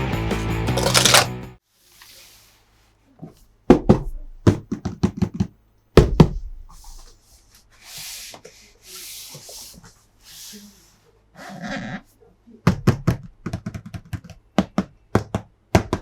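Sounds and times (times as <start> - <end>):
packaging knocks and clicks: 0.8 - 1.3.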